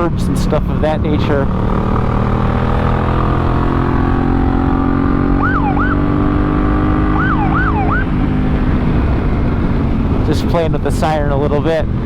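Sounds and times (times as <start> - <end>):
motorcycle engine running: 0.0 - 11.2
police siren blips: 5.3 - 6.1, 7.0 - 8.1.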